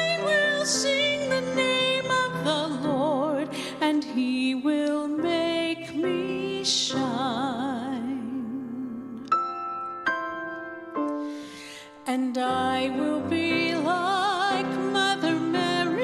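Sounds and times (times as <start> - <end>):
woman singing: 0.0 - 9.3, 12.0 - 16.0
piano accompaniment: 0.0 - 16.0.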